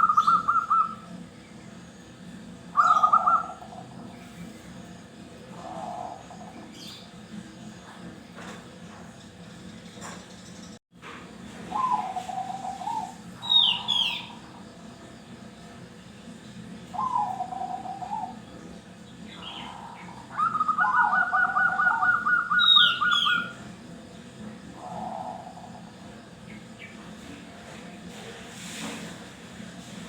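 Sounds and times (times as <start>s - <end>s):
doves cooing: 2.8s - 4.1s, 5.4s - 6.9s, 11.6s - 14.6s, 17.0s - 18.4s, 19.4s - 23.6s, 24.7s - 26.0s.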